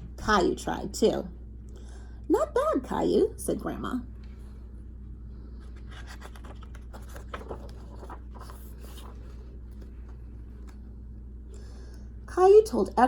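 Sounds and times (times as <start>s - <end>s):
steady low hum: 0.0s - 13.0s
paper pages rustling: 5.6s - 10.8s.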